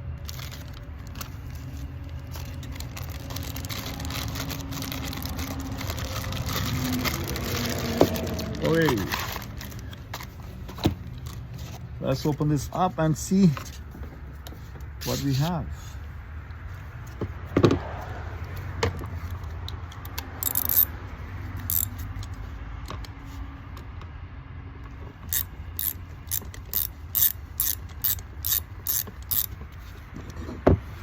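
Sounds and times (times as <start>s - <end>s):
ratchet wrench clicking: 19.3s - 20.9s, 21.6s - 22.3s, 25.2s - 29.6s.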